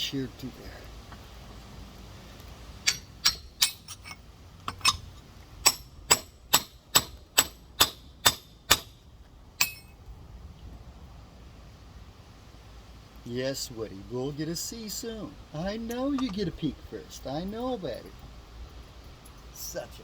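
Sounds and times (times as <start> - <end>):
hammer striking stone: 2.8 - 5.0, 5.6 - 9.0, 9.6 - 9.9.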